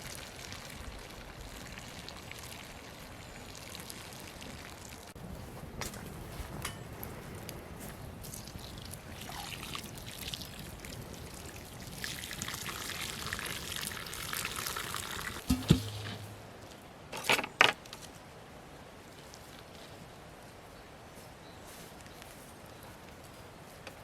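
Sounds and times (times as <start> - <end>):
knock: 15.5 - 16.3.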